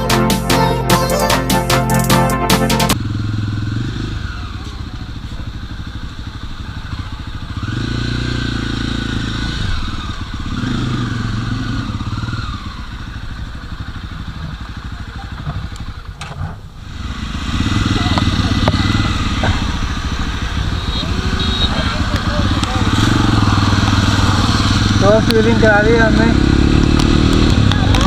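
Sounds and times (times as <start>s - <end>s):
background music: 0.0s - 3.0s
motorcycle engine accelerating: 0.0s - 28.0s.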